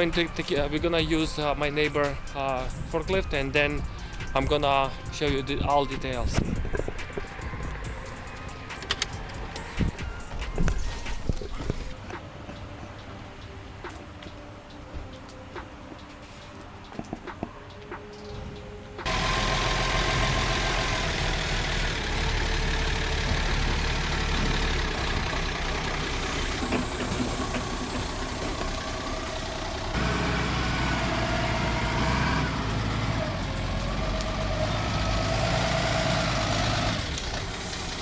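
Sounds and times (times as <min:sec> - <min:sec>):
forklift engine running: 0:19.0 - 0:38.0.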